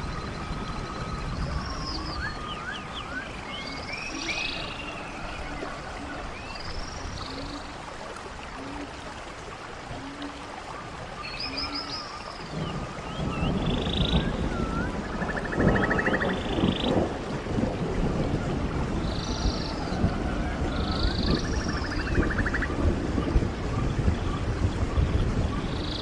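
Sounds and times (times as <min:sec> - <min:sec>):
thunder rumbling: 0:00.0 - 0:07.2, 0:12.4 - 0:26.0
songbirds chirping and whistling: 0:00.0 - 0:07.7, 0:11.2 - 0:17.0, 0:19.0 - 0:22.7
running stream: 0:00.0 - 0:26.0.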